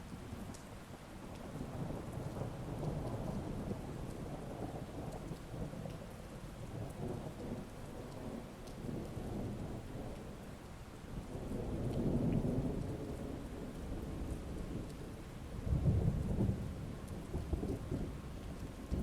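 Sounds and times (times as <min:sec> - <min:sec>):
heavy rain: 0:00.0 - 0:19.0
rolling thunder: 0:15.6 - 0:18.1.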